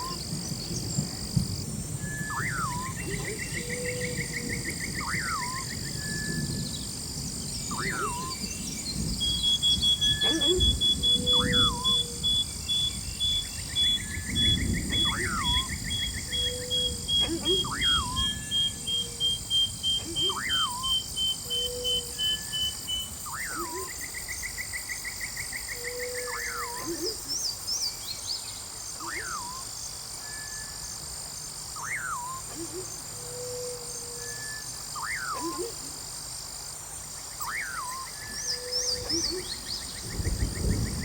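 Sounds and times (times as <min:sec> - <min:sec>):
high insect-like drone: 0:00.0 - 0:27.6
animal call sweeping up and down: 0:10.2 - 0:11.9, 0:17.2 - 0:18.4, 0:20.0 - 0:20.9, 0:35.0 - 0:36.0.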